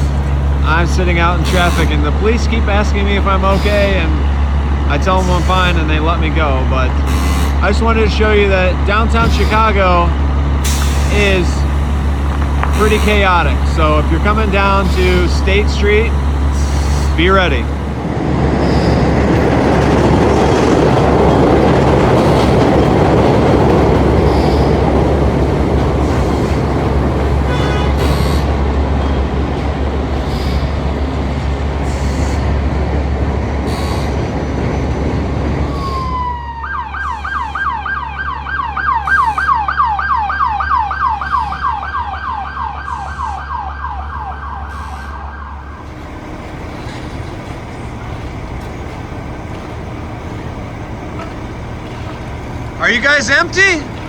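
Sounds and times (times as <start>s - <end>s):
emergency vehicle siren: 0.0s - 31.2s, 35.4s - 46.2s, 52.8s - 54.0s
engine idling: 0.0s - 35.9s, 36.6s - 54.0s
city traffic noise: 0.0s - 54.0s.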